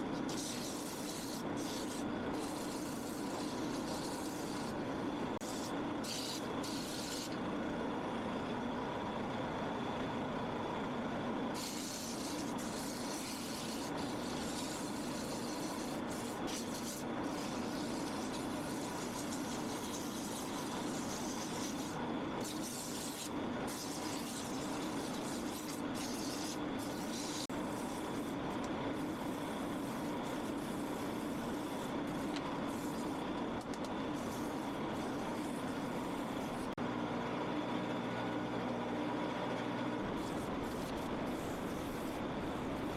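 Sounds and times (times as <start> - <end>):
sandpaper hissing on wood: 0.2 - 4.8, 5.4 - 7.4, 11.6 - 28.4, 29.0 - 33.2, 34.2 - 36.8, 40.2 - 42.9.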